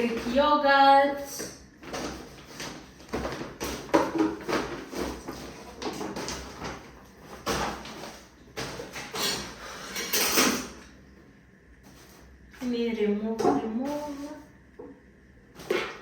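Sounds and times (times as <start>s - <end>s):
packaging rustling: 1.8s - 9.5s.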